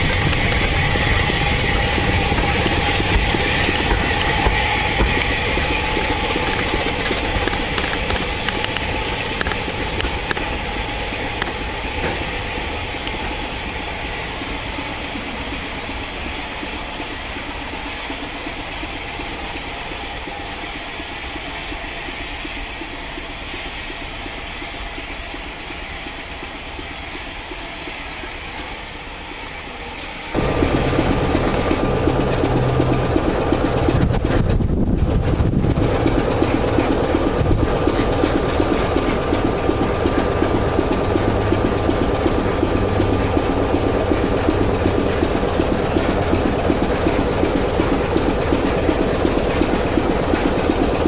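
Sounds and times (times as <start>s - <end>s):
steam locomotive hissing: 0.0s - 51.0s.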